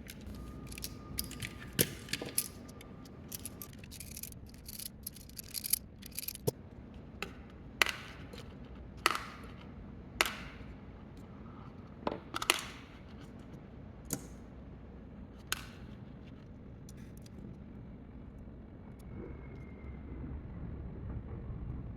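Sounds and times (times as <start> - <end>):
sharp clicks and taps of small parts: 0.0 - 6.6, 7.2 - 10.8, 12.1 - 14.4, 15.4 - 17.4
steady low hum: 0.0 - 21.9.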